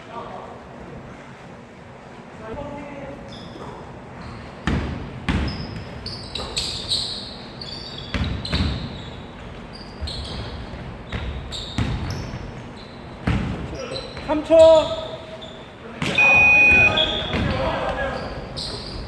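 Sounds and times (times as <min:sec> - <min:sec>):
sneakers squeaking on court: 0:03.2 - 0:19.0
basketball bouncing on gym floor: 0:04.2 - 0:07.1, 0:07.9 - 0:14.8, 0:16.0 - 0:19.0.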